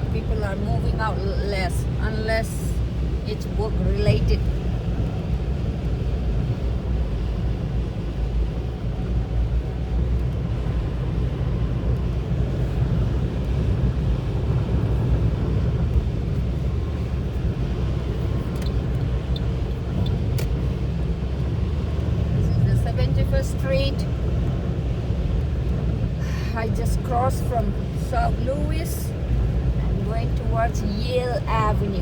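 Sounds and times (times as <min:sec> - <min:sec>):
car engine and road rumble: 0:00.0 - 0:32.0
light ticks: 0:10.1 - 0:10.5, 0:11.9 - 0:14.2, 0:17.3 - 0:22.2.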